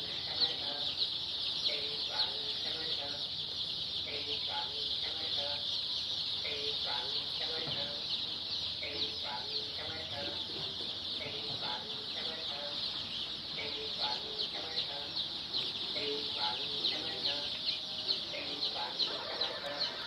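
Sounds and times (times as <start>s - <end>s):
chickens clucking: 0.0s - 20.0s
chicks peeping: 0.0s - 20.0s.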